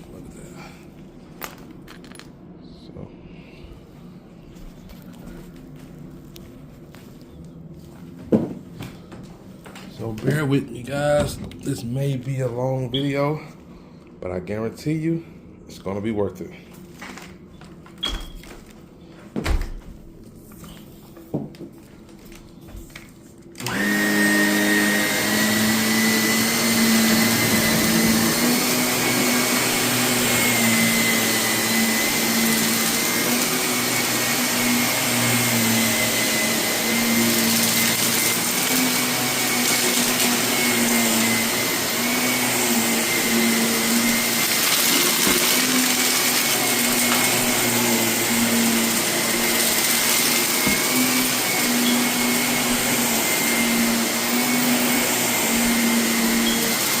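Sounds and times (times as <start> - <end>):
vacuum cleaner whining: 4.1 - 13.6, 21.9 - 57.0.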